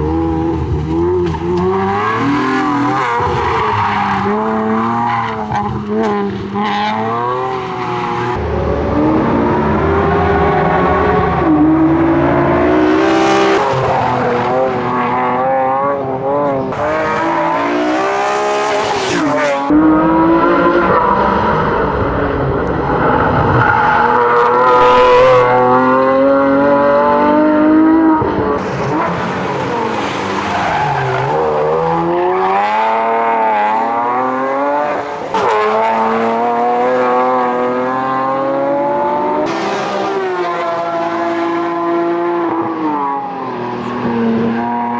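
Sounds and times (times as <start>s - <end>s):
car engine accelerating on track: 0.0s - 44.9s.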